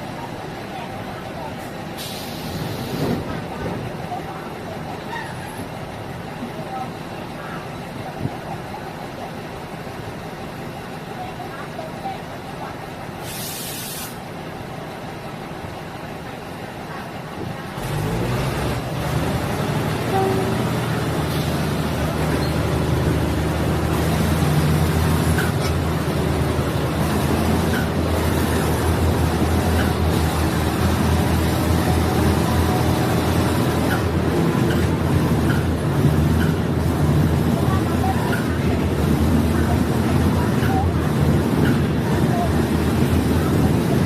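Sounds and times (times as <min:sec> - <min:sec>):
diesel railcar rumble: 0:00.0 - 0:44.0
short burst of hiss: 0:02.0 - 0:03.2, 0:13.2 - 0:14.3.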